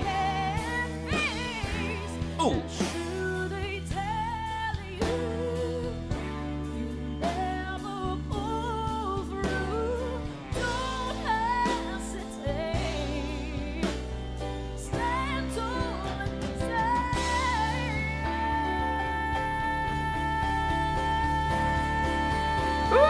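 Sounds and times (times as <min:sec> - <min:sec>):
bass: 0:00.0 - 0:23.0
drum kit: 0:00.0 - 0:23.0
woman singing pop ballad: 0:00.0 - 0:23.0.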